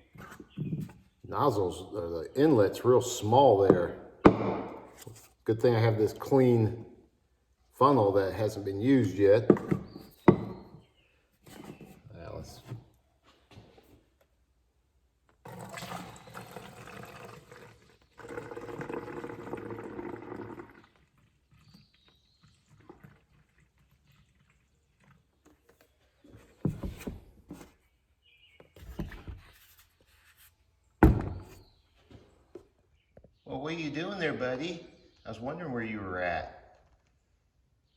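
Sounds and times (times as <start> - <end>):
handling knocks: 3.6 - 5.0, 31.0 - 31.6
liquid pouring into plastic bottle: 15.3 - 25.9.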